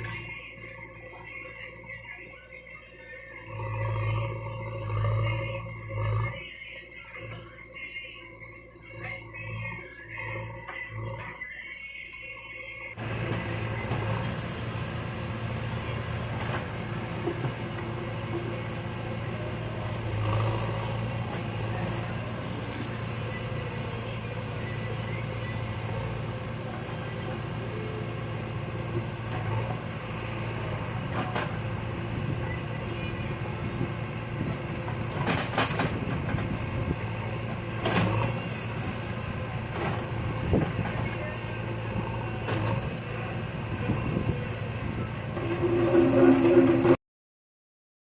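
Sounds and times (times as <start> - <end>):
diesel engine running: 0.0 - 11.4, 12.3 - 47.0.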